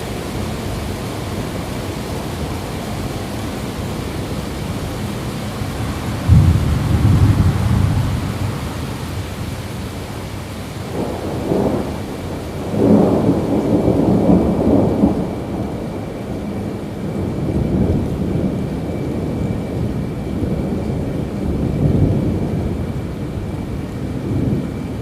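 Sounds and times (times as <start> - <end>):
steady rain: 0.0 - 25.0
rolling thunder: 3.3 - 25.0.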